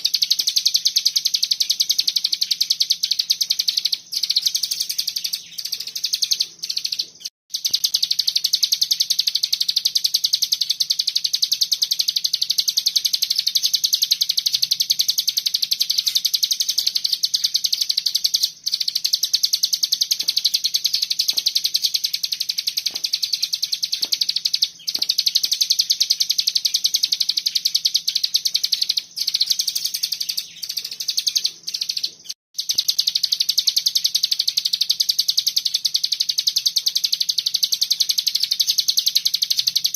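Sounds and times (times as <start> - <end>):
bird singing buzzing trill: 0.0 - 39.9.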